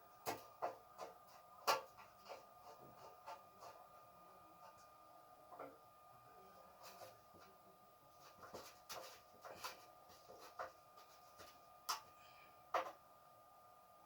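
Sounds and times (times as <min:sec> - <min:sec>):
faint high whine: 0:03.6 - 0:14.0.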